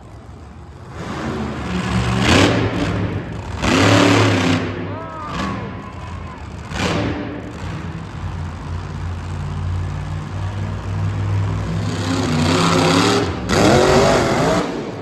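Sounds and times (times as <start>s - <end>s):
monster truck engine revving: 0.0s - 15.0s.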